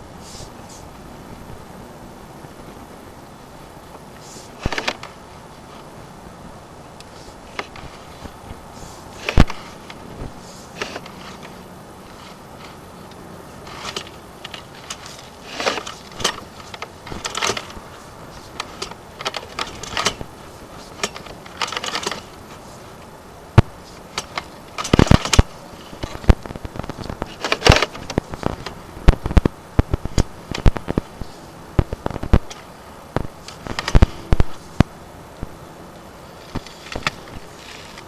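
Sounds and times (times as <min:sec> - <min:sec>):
cable scraping and rattling in pipe: 0:07.1 - 0:12.9, 0:13.6 - 0:22.9, 0:23.8 - 0:32.6, 0:36.4 - 0:38.0.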